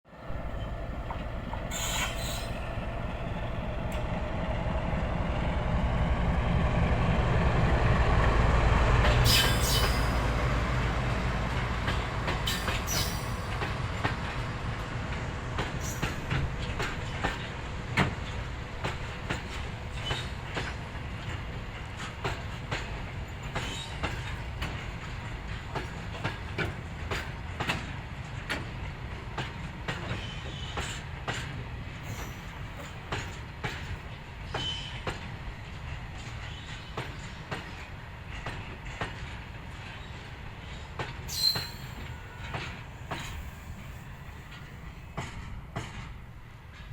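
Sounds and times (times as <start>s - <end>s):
train rumbling past: 0.1s - 46.9s
train wheel squeals: 0.3s - 4.0s, 9.1s - 10.4s, 12.3s - 14.1s, 15.6s - 18.4s, 19.0s - 27.8s, 29.4s - 35.3s, 36.1s - 46.9s
wheels clicking over rail joints: 15.1s - 46.9s.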